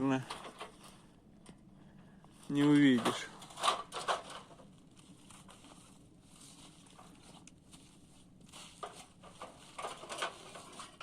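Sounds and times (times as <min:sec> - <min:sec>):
outdoor background hiss: 0:00.0 - 0:11.0
faint scuffing noises: 0:04.8 - 0:10.7.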